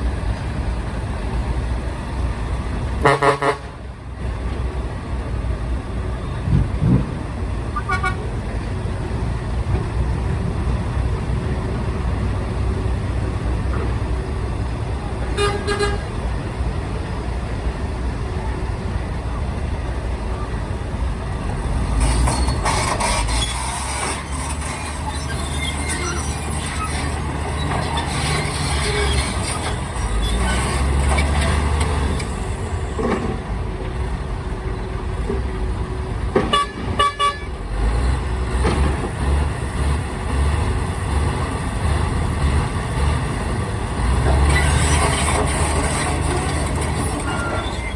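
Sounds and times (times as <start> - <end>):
heavy diesel machines rumbling: 0.0 - 47.9
truck horn toot: 3.0 - 3.8, 7.8 - 8.4, 15.3 - 16.2, 36.4 - 37.8.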